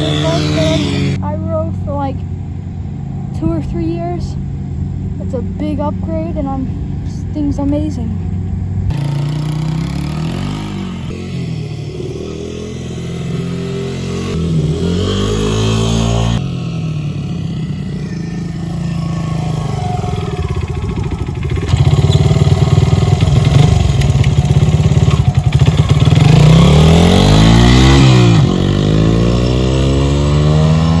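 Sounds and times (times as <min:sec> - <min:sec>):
dirt bike engine revving: 0:00.0 - 0:02.0, 0:08.9 - 0:31.0.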